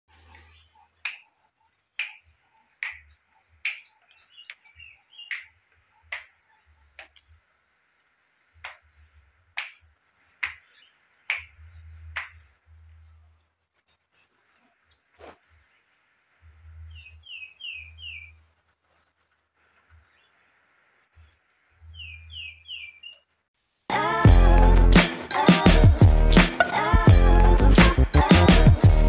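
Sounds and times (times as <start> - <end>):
faint high hiss: 23.6 - 24.3.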